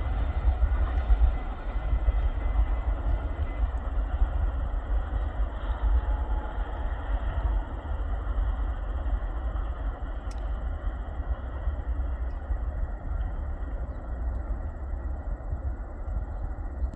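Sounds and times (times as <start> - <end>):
freight train rumbling past: 0.0 - 16.9
sharp click: 10.3 - 10.5.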